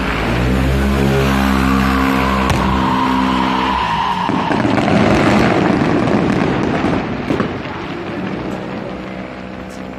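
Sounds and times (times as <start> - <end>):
fireworks crackling: 2.4 - 9.9
steady pitched drone: 7.7 - 9.9.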